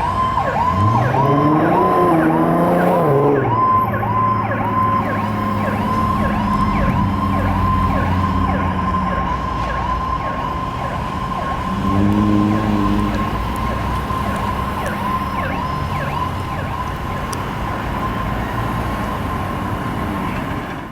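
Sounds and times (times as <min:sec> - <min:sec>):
fire truck siren: 0:00.0 - 0:20.9
low horn blast: 0:11.7 - 0:13.5.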